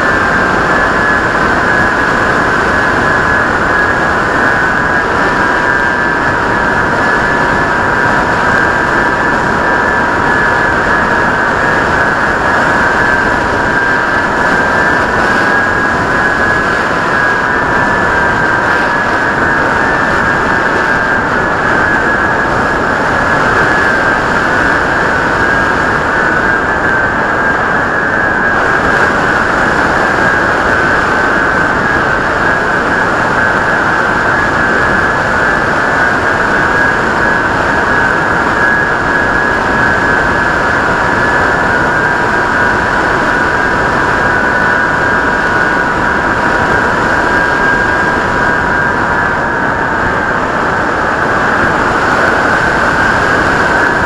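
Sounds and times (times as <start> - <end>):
wind noise: 0.0 - 54.0.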